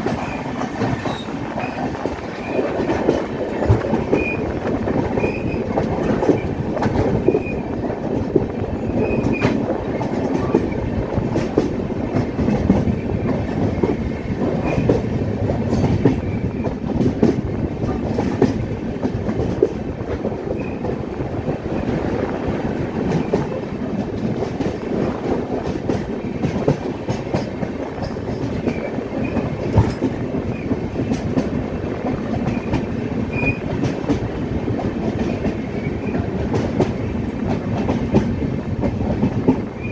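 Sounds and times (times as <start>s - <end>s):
passenger train running on track: 0.0s - 39.9s
wheels clicking over rail joints: 0.0s - 39.9s
wheel squeals: 4.1s - 6.4s, 7.2s - 7.7s, 33.3s - 33.7s.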